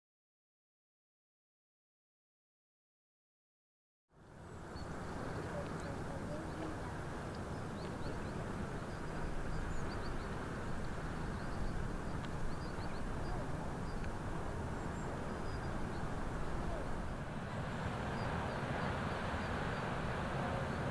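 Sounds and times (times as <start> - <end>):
small birds chirping: 4.2 - 20.9.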